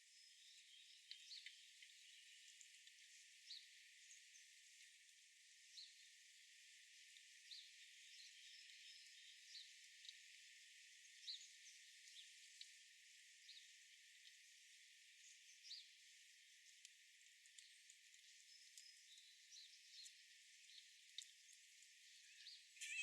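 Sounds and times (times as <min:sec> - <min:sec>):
thin high outdoor hiss: 0:00.0 - 0:23.0
faint bird chirps: 0:22.0 - 0:23.0.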